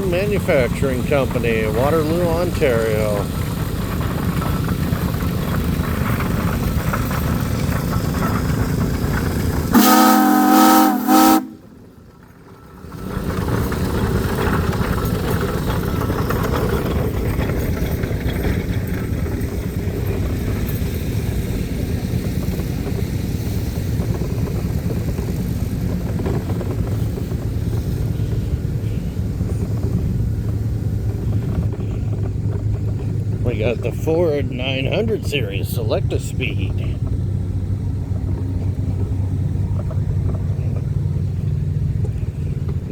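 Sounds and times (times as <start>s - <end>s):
engines running: 0.0s - 42.9s
steam engine whistle: 9.7s - 11.8s.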